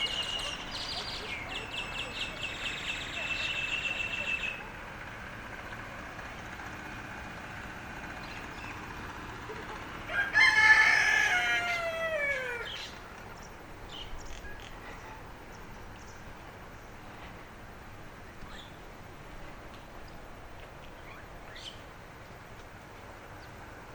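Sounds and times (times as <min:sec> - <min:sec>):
rooster crowing: 0:10.0 - 0:12.9.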